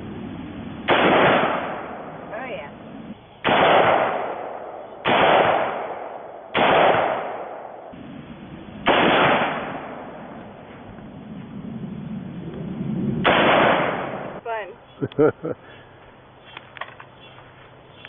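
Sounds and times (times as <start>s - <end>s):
rifle shots echoing: 0.8s - 2.6s, 3.4s - 8.0s, 8.8s - 10.4s, 13.2s - 14.4s.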